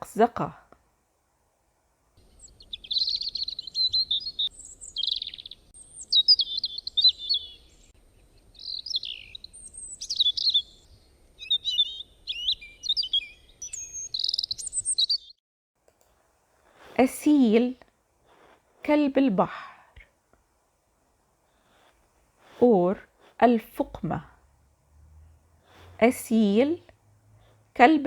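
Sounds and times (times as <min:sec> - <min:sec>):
sparrow chirping: 0:02.2 - 0:15.4, 0:25.7 - 0:26.8.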